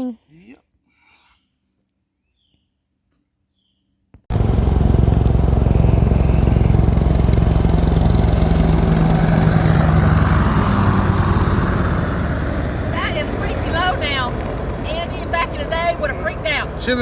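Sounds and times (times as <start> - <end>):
low-flying helicopter: 4.3 - 17.0.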